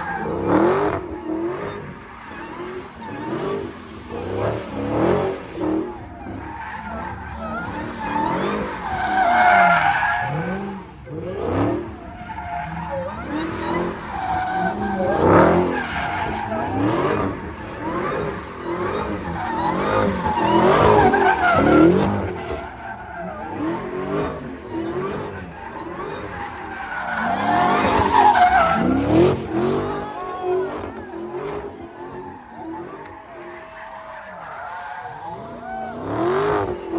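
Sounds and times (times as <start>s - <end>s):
engines revving: 0.0s - 36.9s
tyres squealing: 12.2s - 36.9s.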